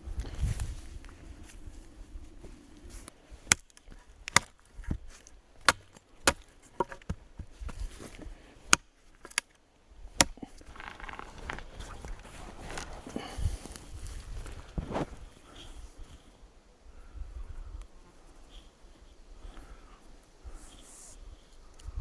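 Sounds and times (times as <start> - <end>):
wood being chopped: 3.4 - 9.5, 10.2 - 11.8.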